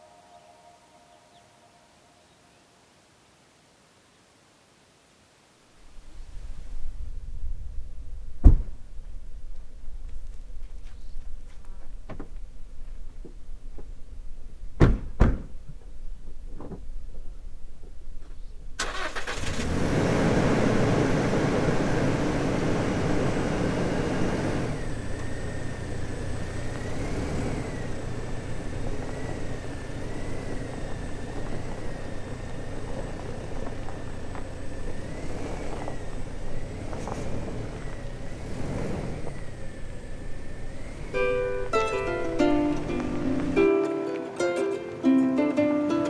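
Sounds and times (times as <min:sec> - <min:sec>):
faint wavering whistle: 0:00.0 - 0:02.6
car engine starting and running: 0:18.7 - 0:44.2.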